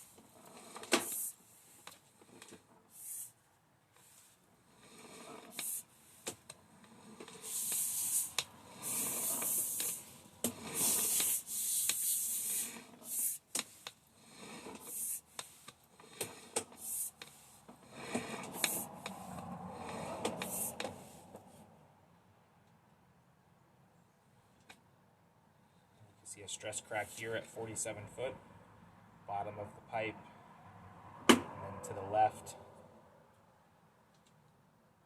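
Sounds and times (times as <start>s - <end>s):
cable scraping and hissing: 0.0s - 3.4s, 4.0s - 21.6s.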